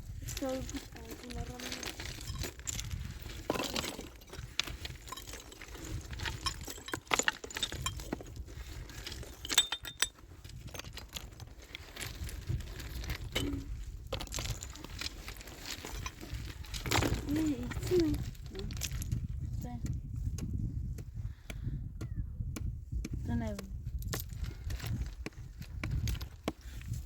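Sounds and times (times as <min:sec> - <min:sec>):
clinks of hard objects: 0:00.3 - 0:19.2.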